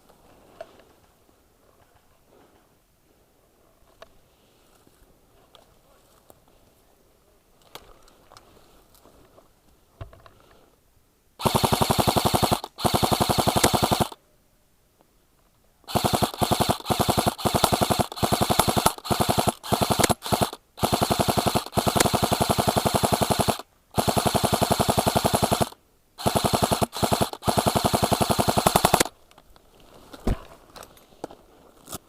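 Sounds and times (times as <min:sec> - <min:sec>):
airsoft rifle automatic bursts: 0:11.4 - 0:14.2, 0:15.9 - 0:29.1.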